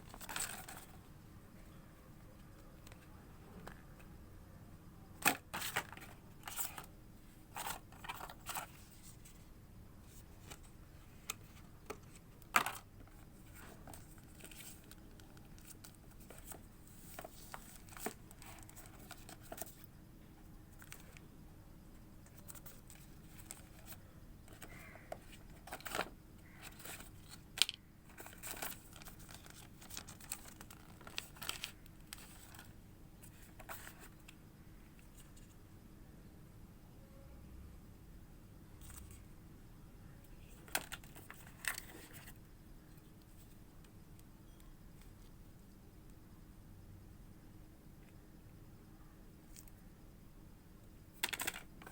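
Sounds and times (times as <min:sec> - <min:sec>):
packaging rustling and tearing: 0:22.6 - 0:32.7.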